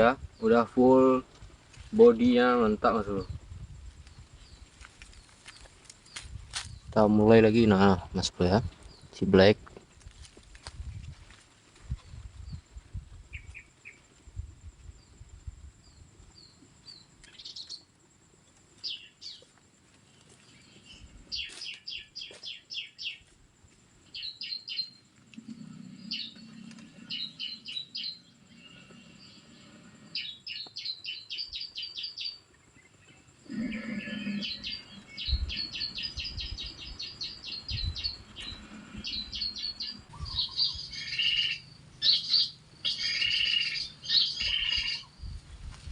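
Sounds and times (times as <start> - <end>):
bird chirping: 15.8 - 17.9, 18.8 - 19.4, 20.4 - 23.2, 24.1 - 45.4.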